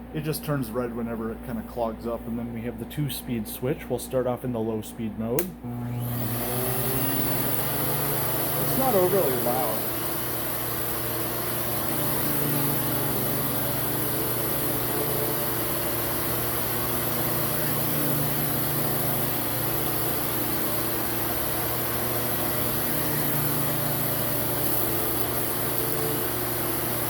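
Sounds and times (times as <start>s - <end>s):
vacuum cleaner running: 5.5s - 27.0s.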